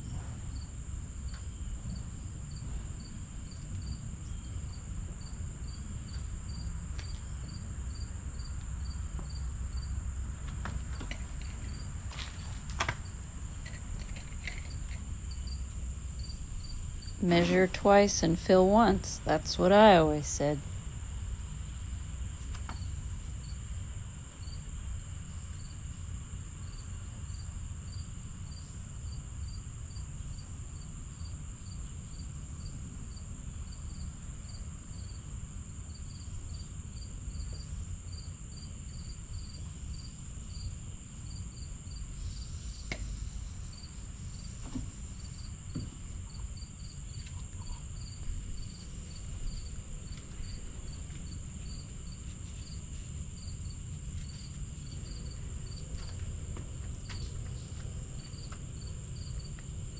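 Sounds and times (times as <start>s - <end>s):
crickets chirping: 14.6s - 20.6s, 38.0s - 59.9s
low background rumble: 16.2s - 20.6s.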